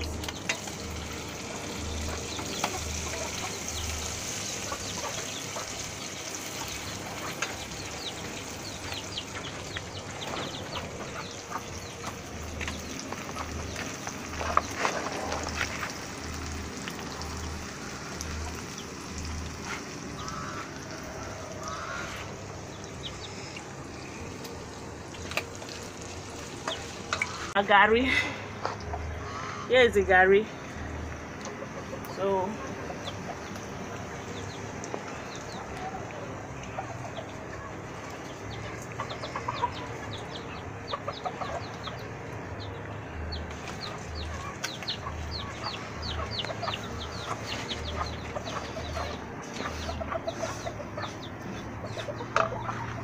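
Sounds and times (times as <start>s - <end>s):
wood fire crackling: 0.0s - 27.7s.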